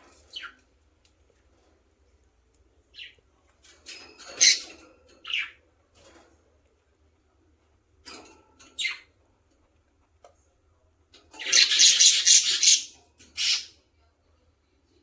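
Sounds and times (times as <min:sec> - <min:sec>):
budgies chirping: 0:00.1 - 0:00.6, 0:02.9 - 0:03.2, 0:04.3 - 0:05.6, 0:11.4 - 0:13.7
rapidly pulsing squawk: 0:11.5 - 0:13.7.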